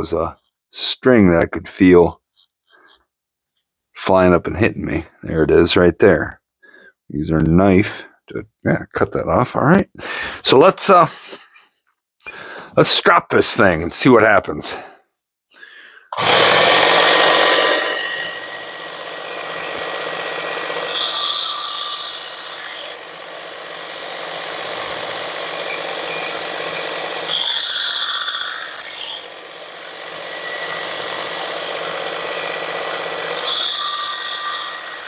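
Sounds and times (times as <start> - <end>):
belt sharpener motor running: 16.2 - 35.0.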